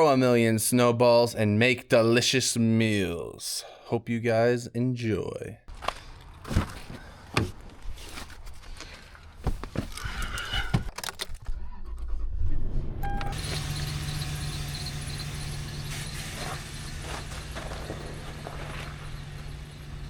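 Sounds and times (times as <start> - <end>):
vehicle engine starting and running: 11.0 - 20.0.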